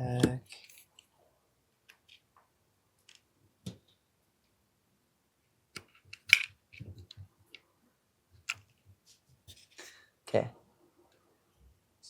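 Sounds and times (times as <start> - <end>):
plastic pistol parts clicking: 5.8 - 6.6.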